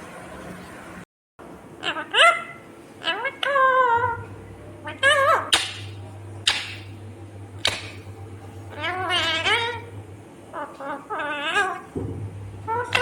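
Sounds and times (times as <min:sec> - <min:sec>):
parakeet screeching: 0:01.8 - 0:06.9, 0:08.7 - 0:09.9, 0:10.5 - 0:12.0, 0:12.6 - 0:13.0
parakeet warbling chatter: 0:01.8 - 0:06.9, 0:08.7 - 0:09.9, 0:10.5 - 0:12.0, 0:12.6 - 0:13.0.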